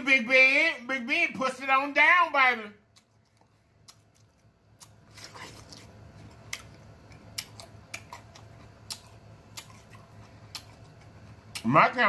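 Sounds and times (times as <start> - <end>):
faint low hum: 0.0 - 12.0
chewing with wet mouth clicks: 2.9 - 11.7.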